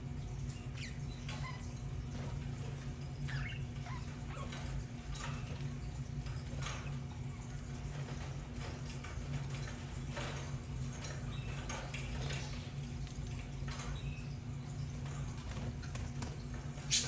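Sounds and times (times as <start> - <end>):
birds scratching and rustling: 0.0 - 17.0.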